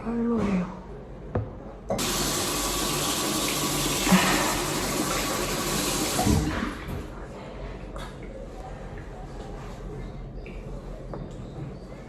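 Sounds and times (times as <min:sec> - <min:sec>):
water running from a tap: 0:02.0 - 0:06.9.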